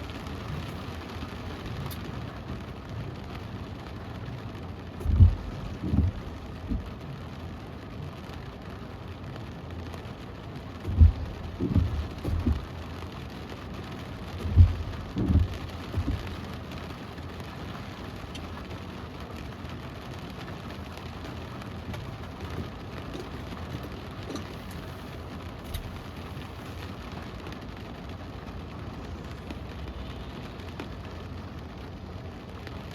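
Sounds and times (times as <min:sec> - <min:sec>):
steady rain: 0:00.0 - 0:32.9
short low thumps: 0:05.0 - 0:06.9, 0:10.8 - 0:12.7, 0:14.4 - 0:16.4.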